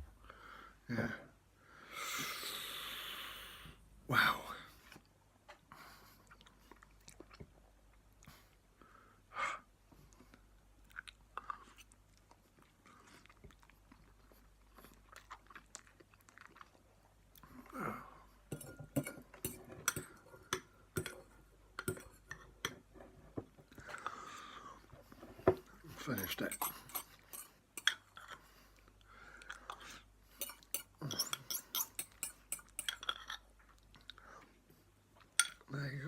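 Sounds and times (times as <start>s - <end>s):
person chewing noodles: 6.2s - 8.6s, 10.1s - 22.6s, 25.7s - 35.4s.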